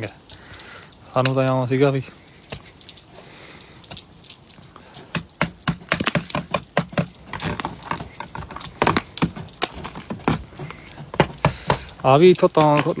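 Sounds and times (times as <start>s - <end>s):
metal spike chipping ice: 5.0s - 13.0s.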